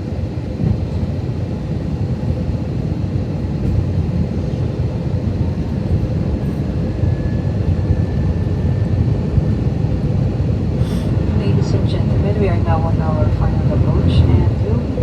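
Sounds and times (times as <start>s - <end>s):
aircraft cabin engine rumble: 0.0s - 15.0s
faint steady hum: 10.8s - 15.0s.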